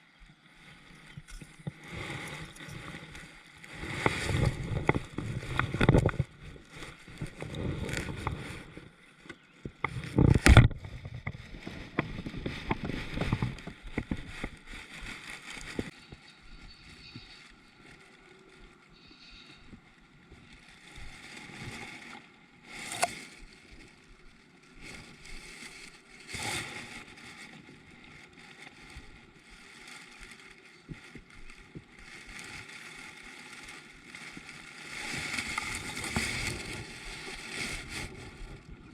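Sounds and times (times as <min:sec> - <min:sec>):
water sloshing and splashing: 0:20.8 - 0:38.9.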